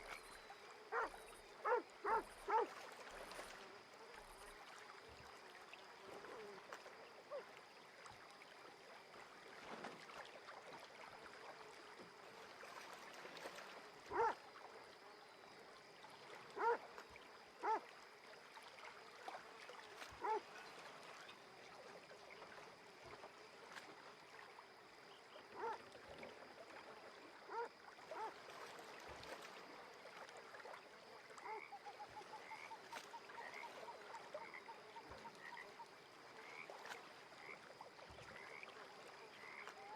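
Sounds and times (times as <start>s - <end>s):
faint hiss of water: 0.0s - 39.9s
frog croaks: 31.4s - 39.9s.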